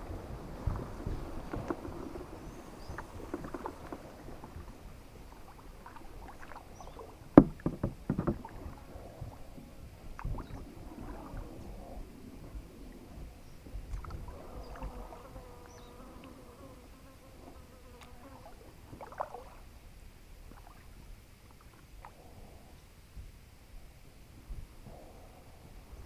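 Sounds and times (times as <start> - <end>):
paddle in water: 0.0 - 22.2
knocks against kayak hull: 7.3 - 8.7
low rumble: 8.3 - 15.4.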